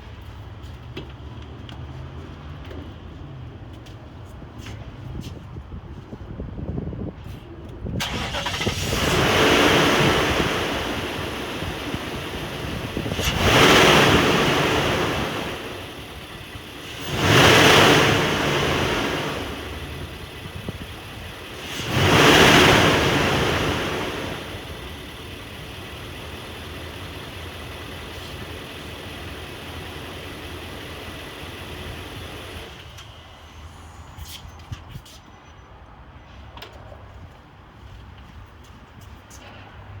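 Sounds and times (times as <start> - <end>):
pickup engine revving and idling: 8.0 - 33.0.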